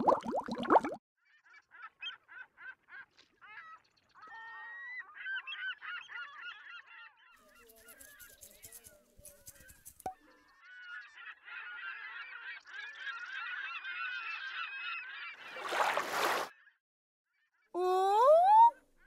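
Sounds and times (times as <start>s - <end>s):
bubbling water: 0.0s - 1.0s
flock of birds calling: 10.4s - 15.5s.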